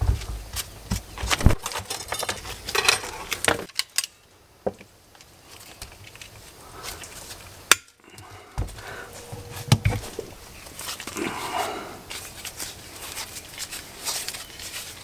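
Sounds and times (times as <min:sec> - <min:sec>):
metal parts clinking and clicking: 0:01.3 - 0:04.2.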